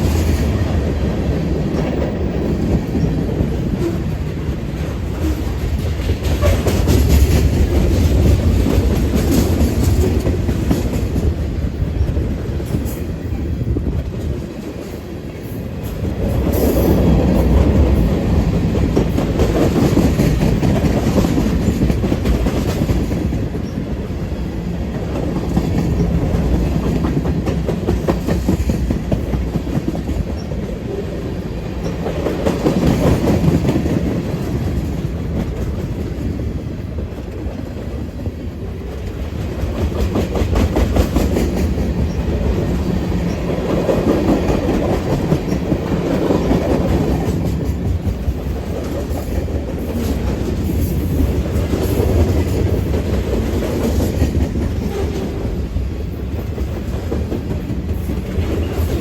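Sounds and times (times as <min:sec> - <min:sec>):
train low rumble: 0:00.0 - 0:59.0
train wheels clickety-clack: 0:00.0 - 0:59.0.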